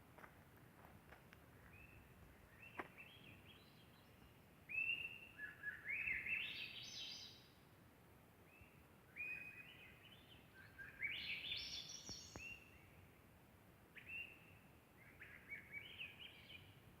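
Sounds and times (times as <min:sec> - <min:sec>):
songbirds chirping: 0:01.0 - 0:17.0.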